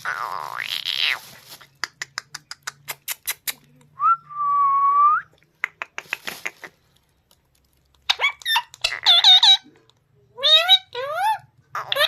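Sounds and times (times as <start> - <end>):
parrot clicks and chirps: 1.6 - 4.0, 5.3 - 7.0, 7.9 - 10.0.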